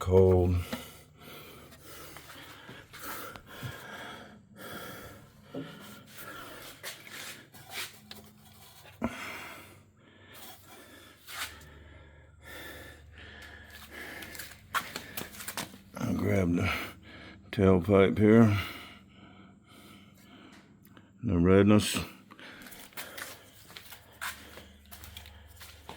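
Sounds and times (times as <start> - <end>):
rustling and handling noise: 5.7 - 9.0, 13.7 - 15.9, 22.6 - 25.9.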